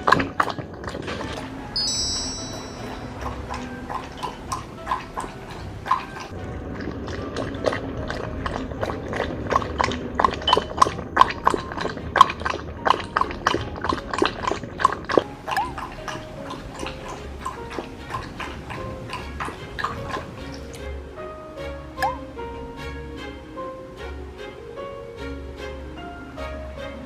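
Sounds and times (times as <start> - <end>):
dog lapping water: 0.0 - 1.6, 2.5 - 21.0
background music: 0.0 - 27.0.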